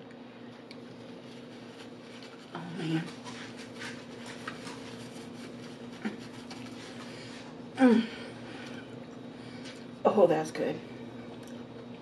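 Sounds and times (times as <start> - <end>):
person humming: 7.8 - 8.3
chewing with mouth clicks: 11.2 - 12.0.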